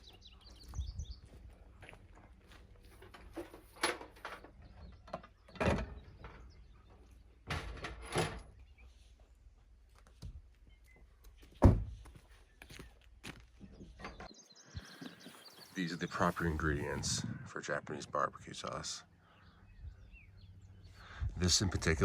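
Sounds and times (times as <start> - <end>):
thuds and clunks: 11.6 - 12.1.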